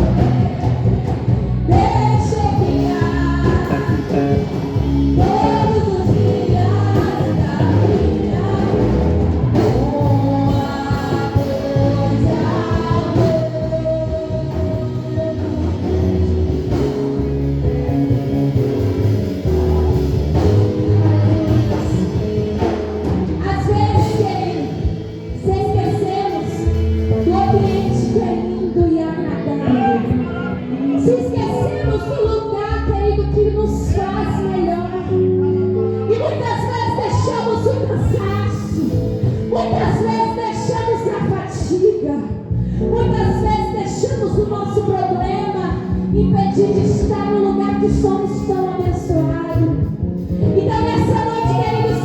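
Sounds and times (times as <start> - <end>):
person singing with band: 0.0 - 16.9, 19.0 - 32.5, 50.4 - 52.0.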